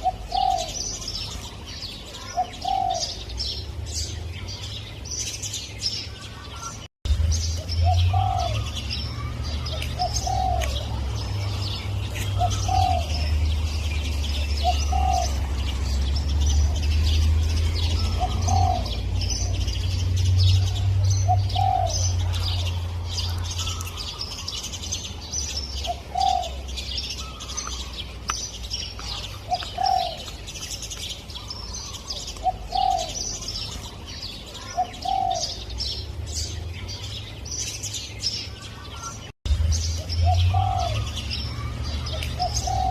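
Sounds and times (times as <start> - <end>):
dove cooing: 0.0 - 1.1, 2.1 - 3.3, 7.8 - 11.1, 12.1 - 13.5, 14.3 - 15.9, 17.8 - 19.7, 20.6 - 23.9, 25.8 - 27.8, 29.0 - 30.4, 31.5 - 33.5, 34.6 - 35.7, 40.2 - 42.9
small birds chirping: 0.0 - 42.9.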